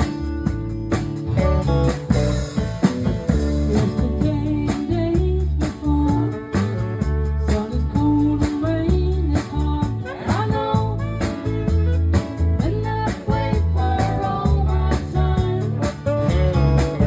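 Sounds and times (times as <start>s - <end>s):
bass guitar: 0.0s - 17.0s
drum kit: 0.0s - 17.0s
guitars: 0.0s - 17.0s
person singing: 3.6s - 11.6s, 12.6s - 16.4s.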